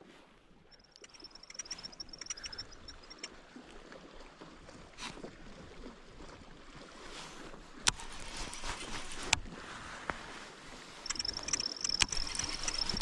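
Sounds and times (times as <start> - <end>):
fishing reel whirring with clicks: 0.7 - 3.3, 11.0 - 13.0
water splashing against kayak: 0.7 - 13.0.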